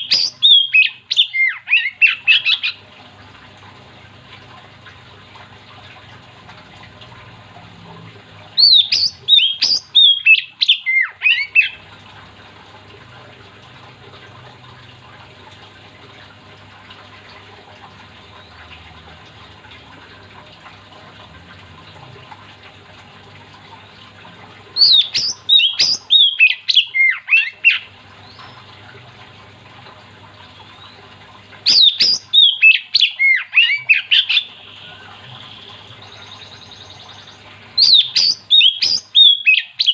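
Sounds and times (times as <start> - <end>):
faint steady hum: 0.0 - 39.9
bird singing whistled notes: 31.7 - 39.9.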